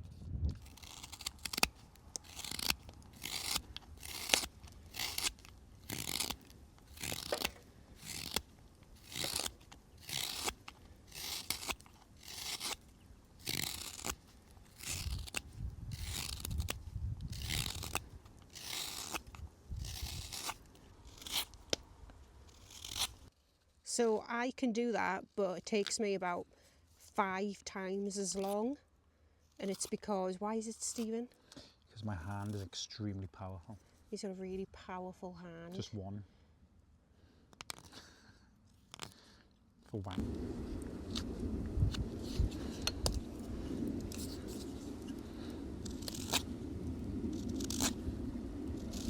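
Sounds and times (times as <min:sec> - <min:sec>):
knife scraping strokes: 0:00.6 - 0:21.7, 0:22.5 - 0:23.3, 0:41.1 - 0:46.6, 0:47.3 - 0:48.1, 0:48.7 - 0:49.0.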